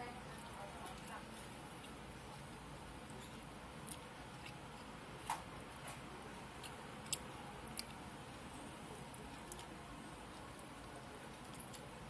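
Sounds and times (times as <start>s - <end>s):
chewing with wet clicks: 0.3s - 2.0s, 3.0s - 6.0s, 6.6s - 8.2s, 9.0s - 12.0s.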